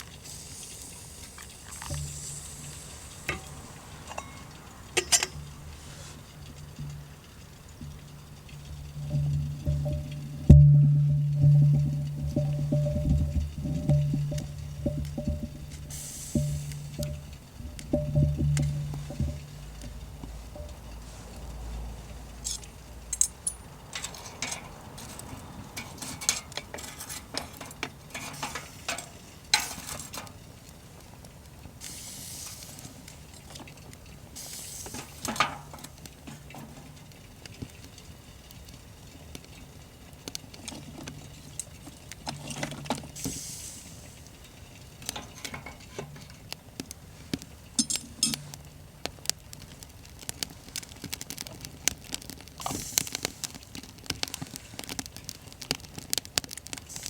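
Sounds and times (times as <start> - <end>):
short hiss: 0.2 - 4.2, 15.9 - 17.0, 31.8 - 33.1, 34.4 - 35.3, 43.2 - 44.3
cutlery clinking on cookware: 3.3 - 5.4, 47.8 - 48.5.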